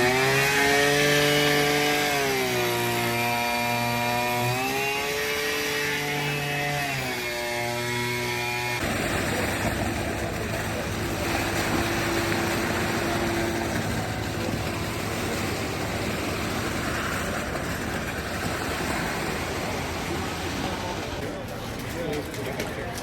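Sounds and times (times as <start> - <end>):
engine running steadily: 8.8 - 21.5.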